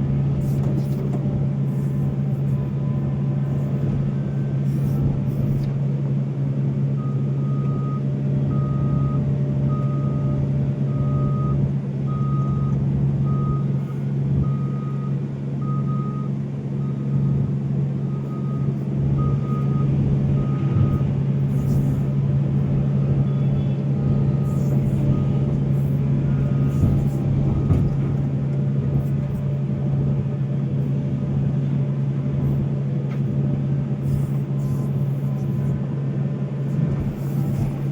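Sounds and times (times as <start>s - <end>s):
excavator diesel engine running: 0.0s - 37.9s
reversing alarm beeping: 1.7s - 5.7s, 6.9s - 28.3s.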